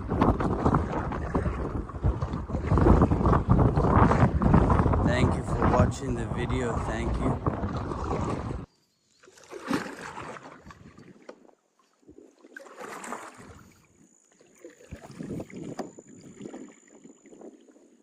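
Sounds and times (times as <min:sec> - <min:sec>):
wavelets slapping hull: 0:00.0 - 0:08.7, 0:09.3 - 0:11.4, 0:12.1 - 0:13.8
water splashing around a kayak: 0:00.0 - 0:18.0.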